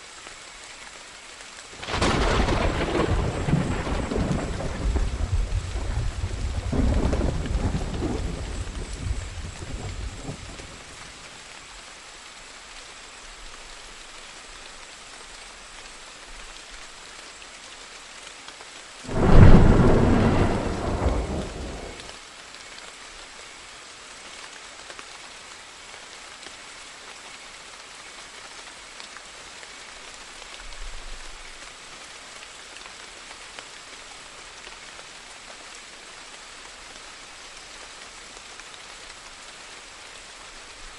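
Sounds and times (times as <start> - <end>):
steady rain falling: 0.0 - 40.9
thunder clap and rumble: 1.8 - 10.7, 19.1 - 22.1.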